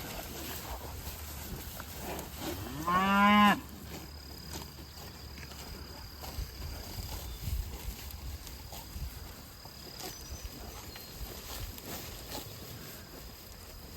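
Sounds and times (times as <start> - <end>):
cow mooing: 2.5 - 3.7.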